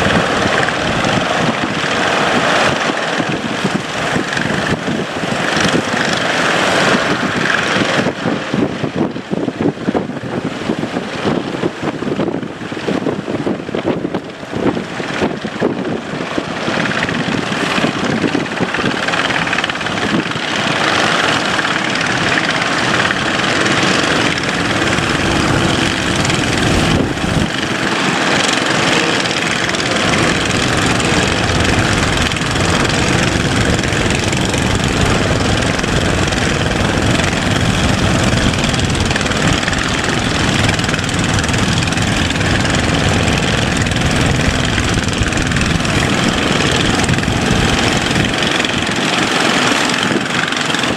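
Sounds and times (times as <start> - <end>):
boat engine running: 0.0 - 50.9
water noise: 0.0 - 50.9
wind rushing: 0.0 - 50.9.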